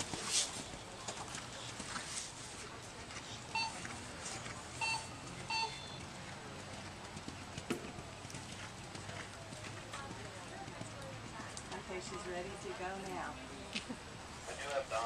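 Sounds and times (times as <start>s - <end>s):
short electronic beeps: 3.5s - 3.8s, 4.8s - 6.0s.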